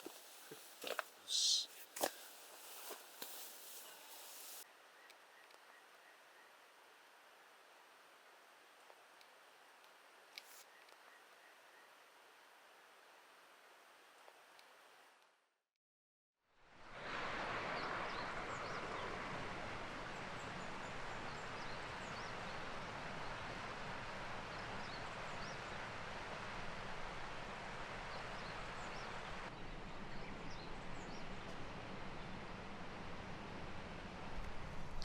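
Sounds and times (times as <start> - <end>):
steady rushing hiss: 0.0 - 4.6
high bird chirps: 1.3 - 1.7.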